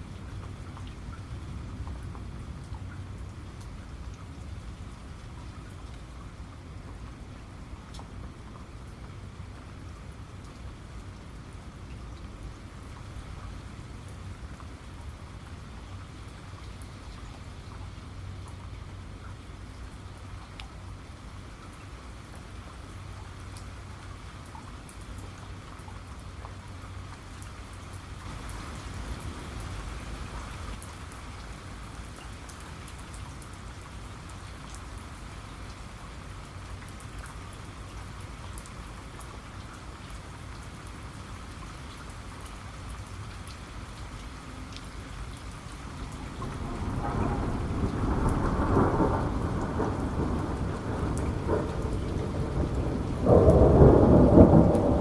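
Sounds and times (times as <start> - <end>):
steady rain: 0.0 - 55.0
thunder rumbling: 46.1 - 55.0.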